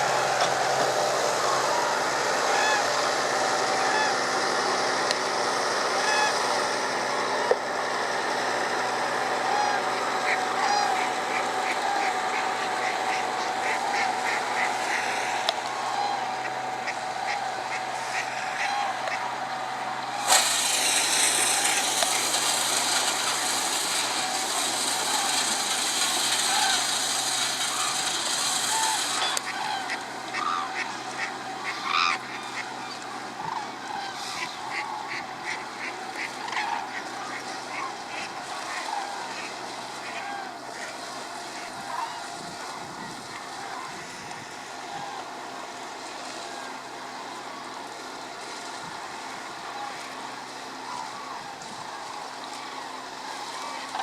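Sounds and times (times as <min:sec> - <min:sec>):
tractor engine humming: 0:00.0 - 0:54.0
water birds honking: 0:00.0 - 0:54.0
coots calling: 0:08.3 - 0:45.5.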